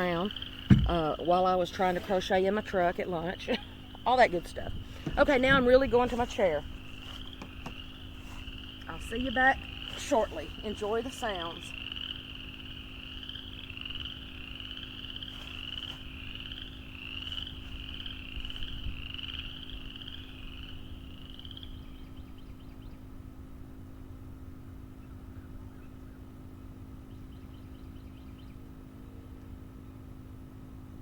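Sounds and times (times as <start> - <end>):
frogs trilling: 0.0 - 29.4
low steady hum: 0.0 - 31.0.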